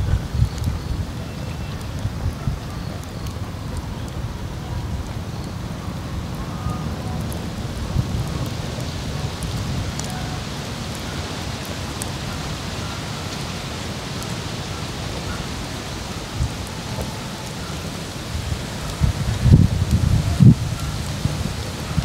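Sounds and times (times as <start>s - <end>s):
wind on microphone: 0.0s - 22.0s
wood fire crackling: 0.0s - 22.0s.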